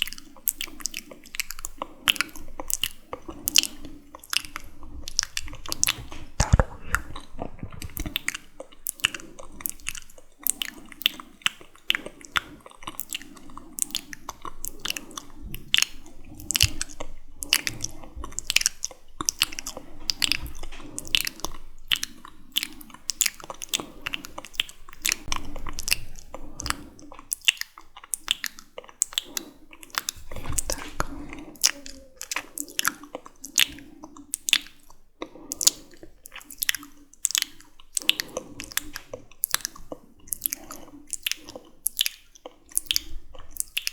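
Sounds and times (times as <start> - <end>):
wet lip and tongue clicks: 0.0 - 43.9.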